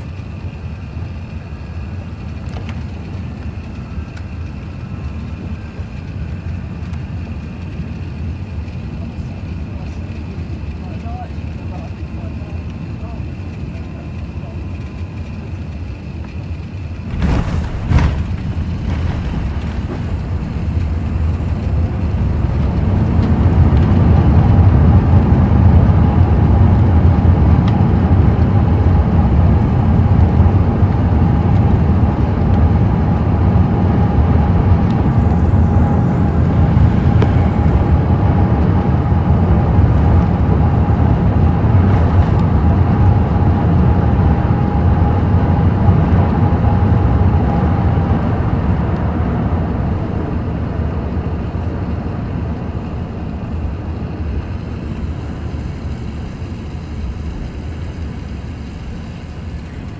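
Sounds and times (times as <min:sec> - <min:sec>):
loud aircraft roar: 0:00.0 - 0:59.9
steady whine: 0:00.0 - 0:59.9
wheels thumping on runway: 0:16.1 - 0:46.4.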